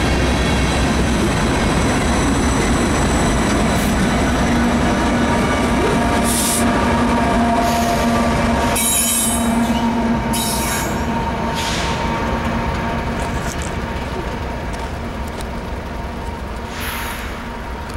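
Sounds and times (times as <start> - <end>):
diesel locomotive engine drone: 0.0 - 17.9.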